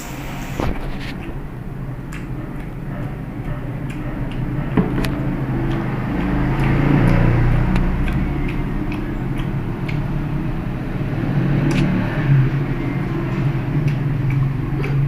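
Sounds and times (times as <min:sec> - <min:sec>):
vehicle engine passing by: 0:04.1 - 0:15.0.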